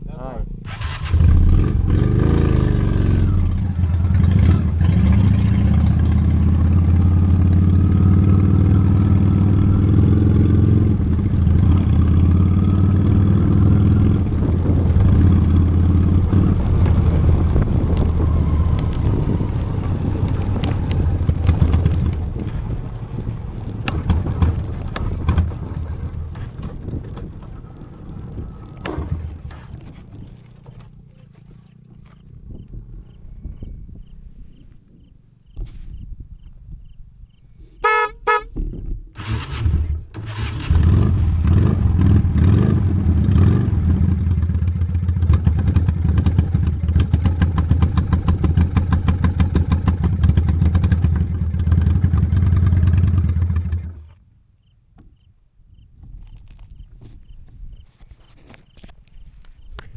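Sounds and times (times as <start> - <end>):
motorcycle engine running: 0.4 - 37.2, 37.8 - 54.2.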